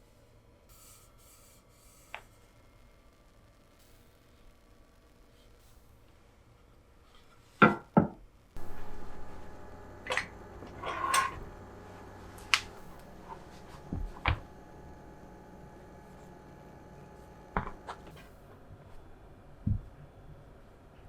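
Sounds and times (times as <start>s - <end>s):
kitchen utensils clicking and knocking: 9.9s - 11.6s.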